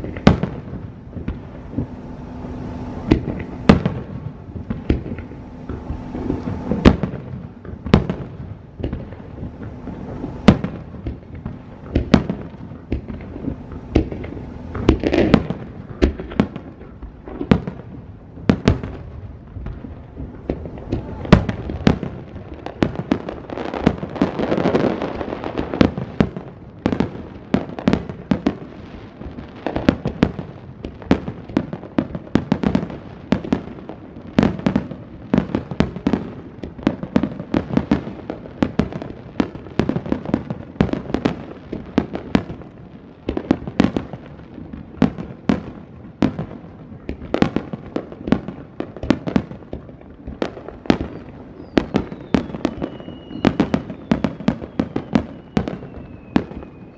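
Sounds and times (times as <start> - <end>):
firework shells bursting: 0.0 - 17.9, 19.6 - 26.4.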